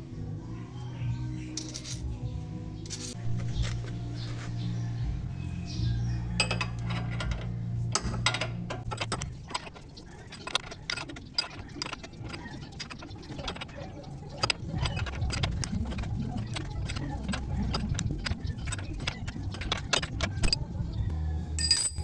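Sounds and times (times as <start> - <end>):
steady low hum: 0.0 - 21.6
metallic clinks of hand tools: 21.6 - 22.0.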